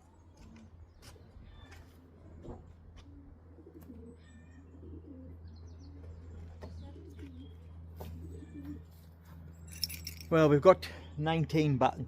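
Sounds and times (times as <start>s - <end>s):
pigeons cooing: 0.2s - 9.2s.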